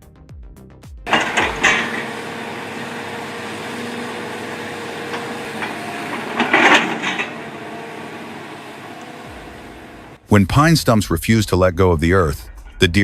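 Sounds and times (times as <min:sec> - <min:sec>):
heavy forestry machine humming: 0:01.1 - 0:10.2.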